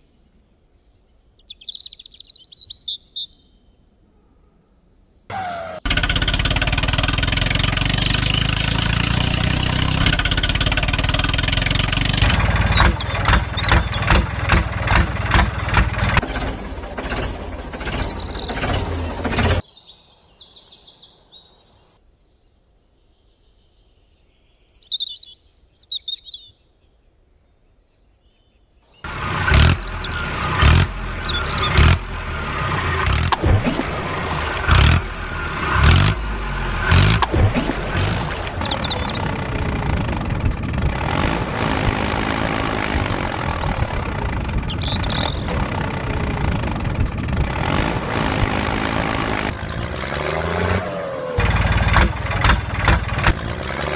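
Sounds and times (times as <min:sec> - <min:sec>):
faint birds chirping: 0:00.0 - 0:05.3, 0:11.2 - 0:14.9, 0:17.8 - 0:33.1, 0:38.0 - 0:41.4, 0:42.2 - 0:47.2, 0:48.9 - 0:51.4
engine chugging: 0:05.3 - 0:19.6, 0:29.1 - 0:53.9.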